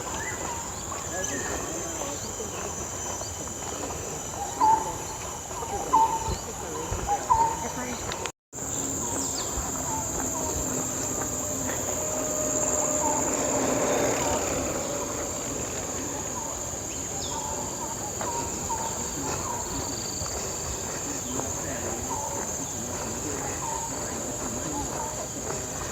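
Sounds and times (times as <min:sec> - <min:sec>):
bird chirps: 0:04.3 - 0:25.6
high-pitched insect drone: 0:08.6 - 0:25.9.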